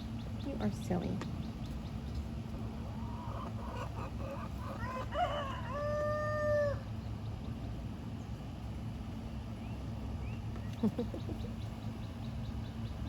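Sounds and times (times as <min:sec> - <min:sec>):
rooster crowing: 0:03.7 - 0:06.9.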